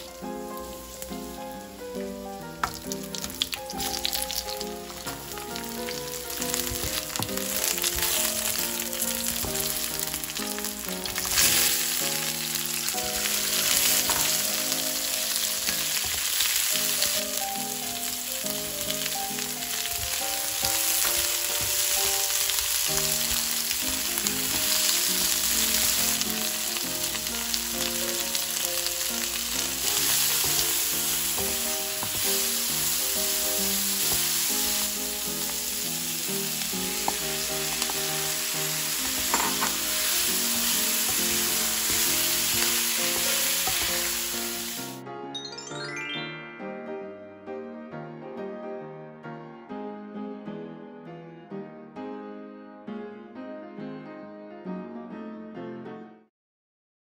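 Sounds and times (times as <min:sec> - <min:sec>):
oil sizzling in a wok: 0:00.0 - 0:45.0.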